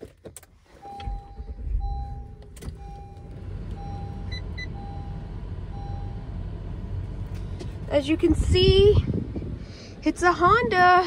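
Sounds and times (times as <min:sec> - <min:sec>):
car engine starting and idling: 0:00.0 - 0:11.0
seat-belt reminder chime: 0:00.8 - 0:06.2.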